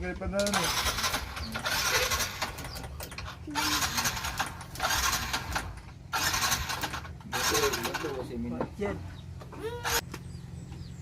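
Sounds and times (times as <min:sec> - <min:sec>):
motorcycle engine bursts: 0:00.4 - 0:08.5.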